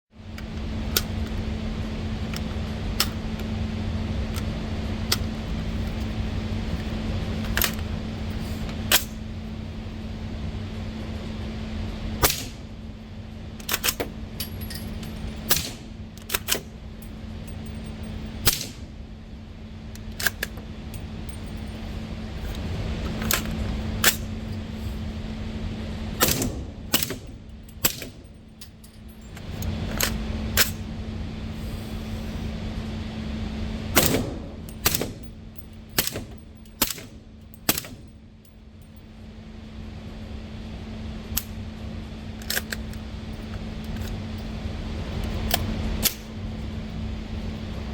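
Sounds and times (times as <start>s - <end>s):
steady low hum: 0.1s - 47.9s
suppressed gunshots: 34.0s - 35.2s.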